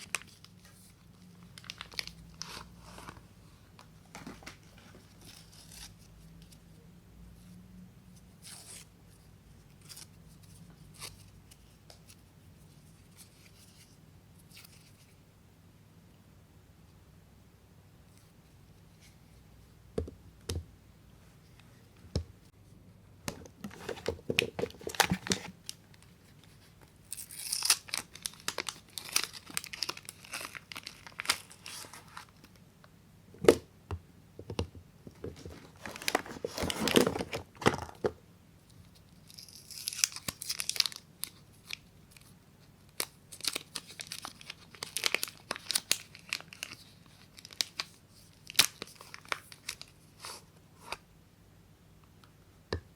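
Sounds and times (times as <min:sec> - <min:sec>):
wrapper tearing and crinkling: 0:00.0 - 0:03.0, 0:26.4 - 0:32.4, 0:35.6 - 0:37.4, 0:39.2 - 0:42.3, 0:43.0 - 0:50.0.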